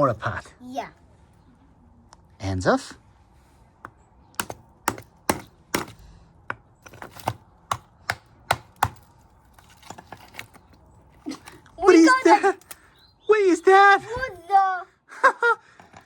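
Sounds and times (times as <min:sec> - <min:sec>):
hammer chipping ice: 0:04.4 - 0:06.0, 0:06.8 - 0:10.5.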